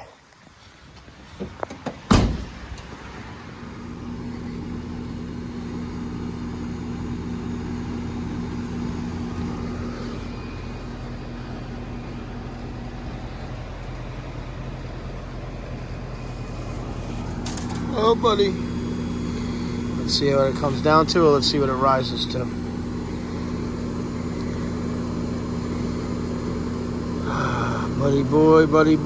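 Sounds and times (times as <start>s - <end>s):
sharp clunk: 1.7s - 2.9s
air conditioner unit humming: 1.9s - 29.0s.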